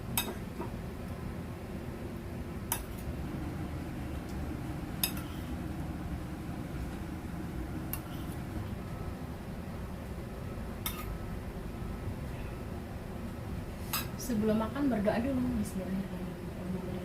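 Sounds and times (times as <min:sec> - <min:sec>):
steady low hum: 0:00.0 - 0:17.0
cutlery clinking against a dish: 0:00.2 - 0:00.4, 0:05.0 - 0:05.5, 0:10.8 - 0:11.1.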